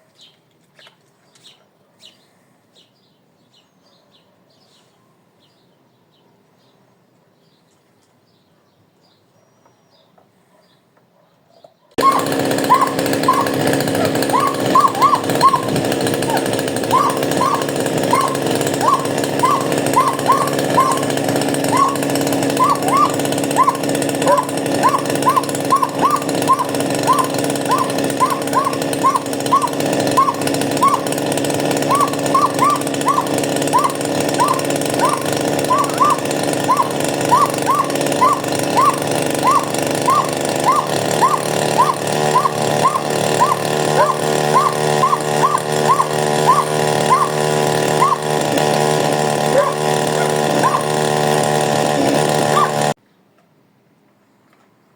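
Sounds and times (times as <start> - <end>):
chainsaw engine running: 12.0 - 53.0.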